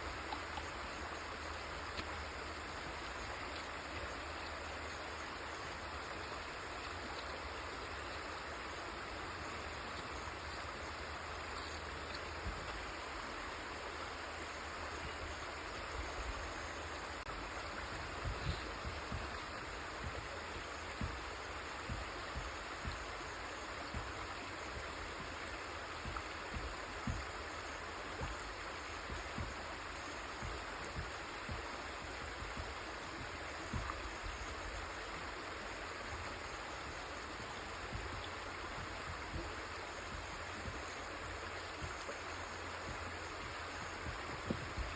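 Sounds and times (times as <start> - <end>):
river water flowing: 0.0 - 44.9
short low thumps: 17.4 - 35.0.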